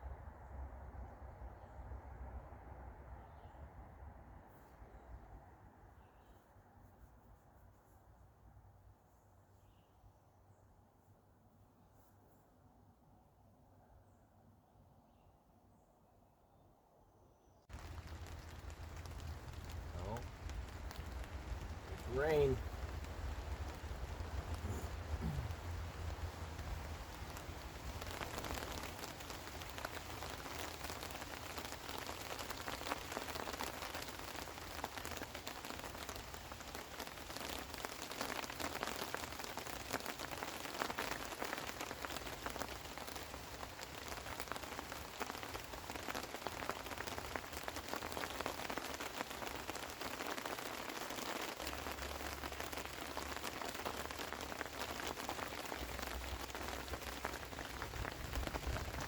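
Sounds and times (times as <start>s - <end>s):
steady rain falling: 17.7s - 59.0s.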